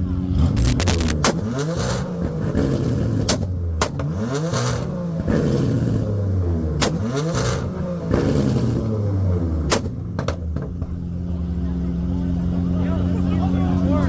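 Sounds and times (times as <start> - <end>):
sports car engine revving: 0.0 - 14.0
exhaust cracks: 0.2 - 6.1.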